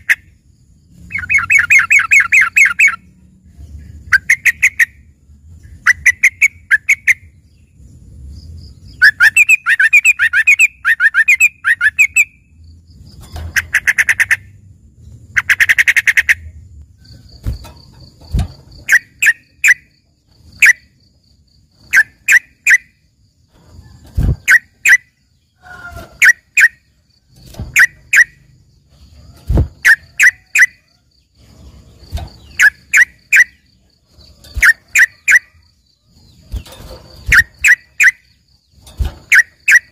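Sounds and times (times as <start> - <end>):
sharp bird chirps: 0.0 - 39.9
bird trilled runs: 31.9 - 35.5.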